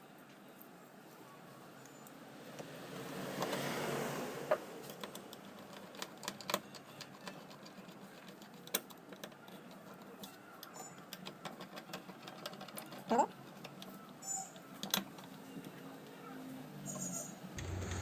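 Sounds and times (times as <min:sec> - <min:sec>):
small parts clicking and tapping: 0:04.8 - 0:15.8.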